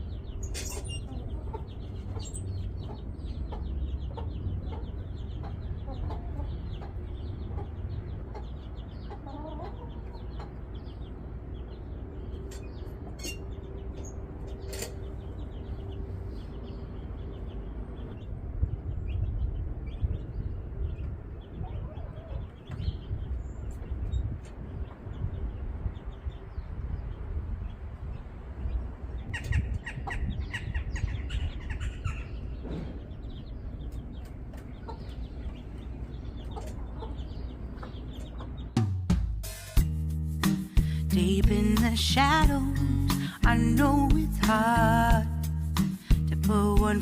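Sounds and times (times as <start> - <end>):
chickens clucking: 0.1 - 18.2, 20.0 - 26.2, 29.0 - 38.9
low rumble: 11.4 - 33.8.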